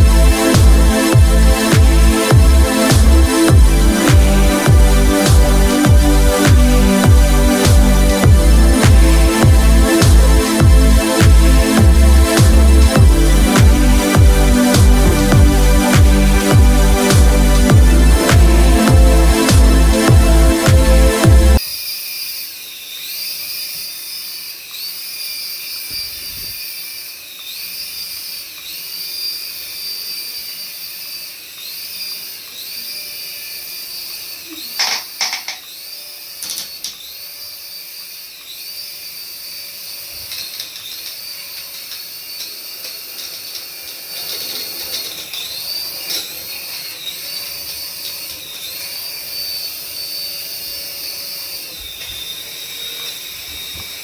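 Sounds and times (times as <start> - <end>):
remote-control toy whining: 21.5 - 54.0.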